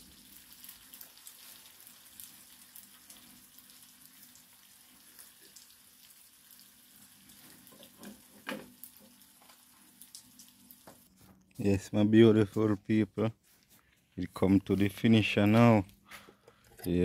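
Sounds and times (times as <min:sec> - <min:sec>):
meat sizzling in a pan: 0:00.0 - 0:11.2.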